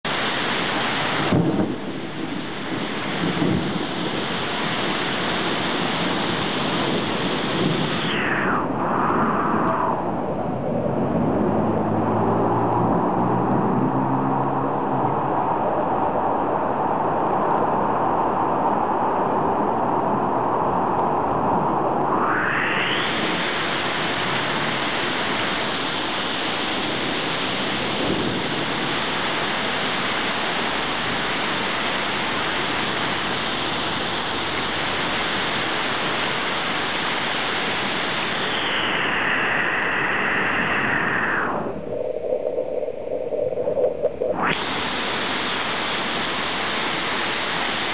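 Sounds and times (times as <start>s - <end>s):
heavy rain falling: 24.0s - 39.1s
low hum: 38.0s - 47.9s.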